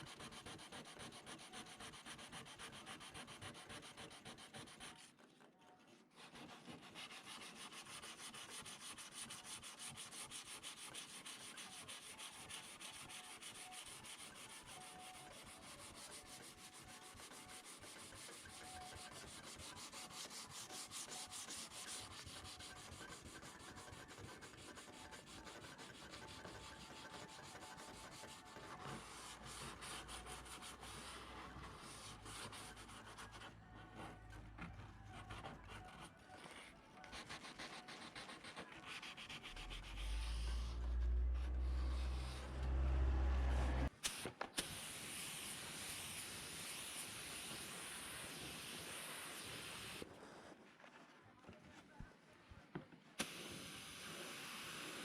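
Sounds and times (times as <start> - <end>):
sanding scratchy rubbing: 0.0 - 43.9.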